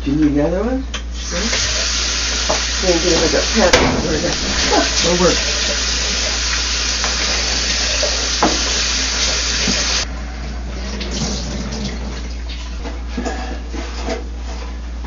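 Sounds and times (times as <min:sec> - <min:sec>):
tap water running: 0:01.1 - 0:10.1, 0:10.7 - 0:13.0.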